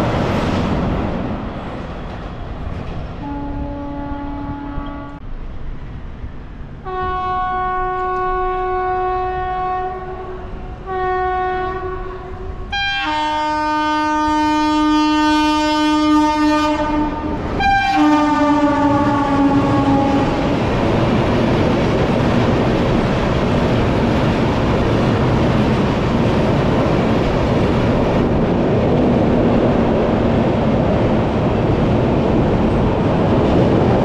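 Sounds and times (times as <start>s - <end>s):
running train rumble: 0.0s - 34.0s
train horn blasts: 3.2s - 5.2s, 6.8s - 20.5s.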